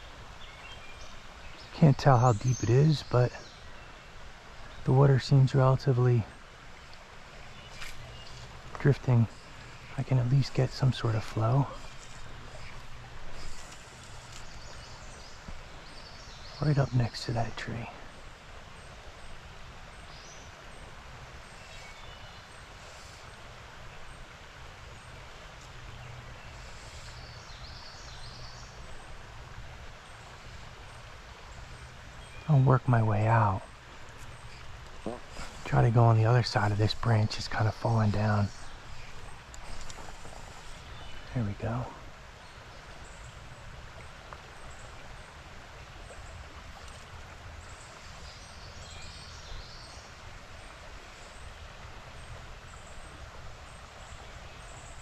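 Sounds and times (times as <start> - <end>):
creek water running: 0.0 - 55.0
flowing stream rushing: 0.0 - 55.0.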